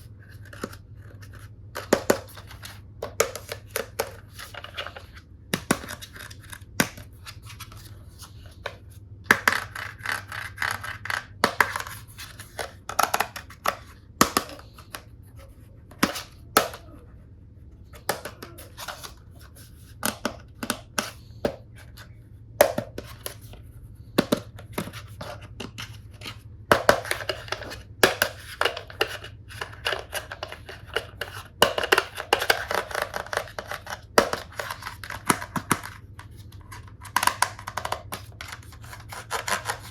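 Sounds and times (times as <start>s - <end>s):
plastic pieces clicking and knocking: 24.2s - 39.9s.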